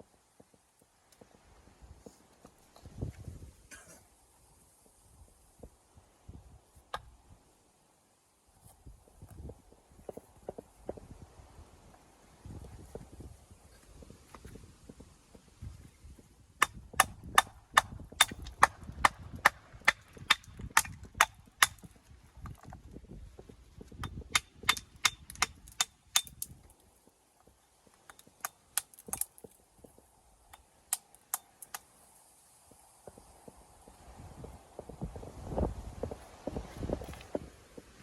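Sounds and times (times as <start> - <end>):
hammer striking stone: 16.6 - 21.9, 24.0 - 26.5.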